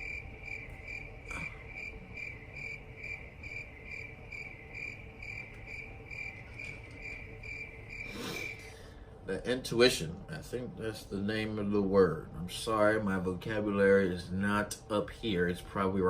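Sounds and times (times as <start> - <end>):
cricket chirping: 0.0 - 8.8
faint steady hum: 0.0 - 16.0.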